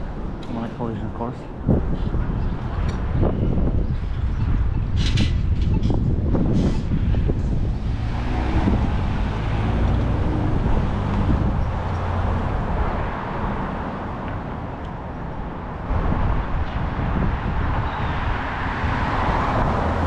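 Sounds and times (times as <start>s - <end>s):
low traffic rumble: 0.0s - 20.0s
vehicle engine passing: 7.3s - 14.2s.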